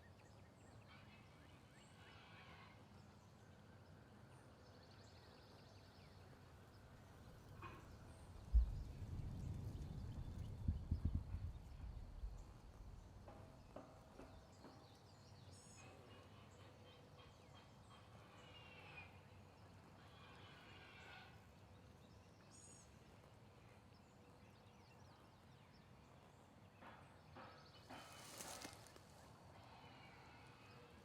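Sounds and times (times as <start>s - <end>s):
faint gliding bird calls: 15.5s - 23.9s.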